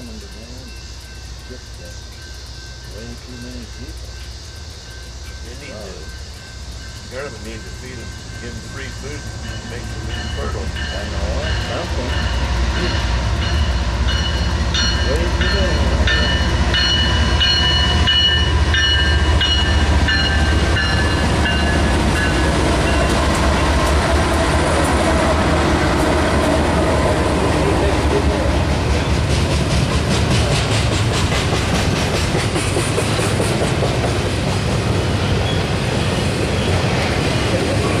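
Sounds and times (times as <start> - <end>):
high tones: 0.0 - 29.6
train wheels rumbling on rail: 0.0 - 38.0
wheel clatter over rail joints: 4.0 - 38.0.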